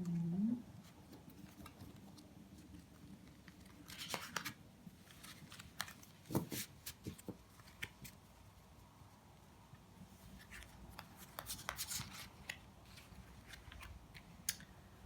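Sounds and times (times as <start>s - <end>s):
cards sliding and rustling: 3.4s - 8.2s, 10.2s - 14.7s.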